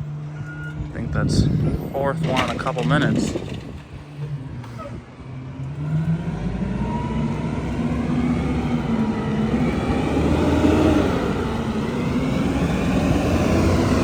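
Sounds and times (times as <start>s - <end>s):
truck engine driving past: 3.5s - 14.0s.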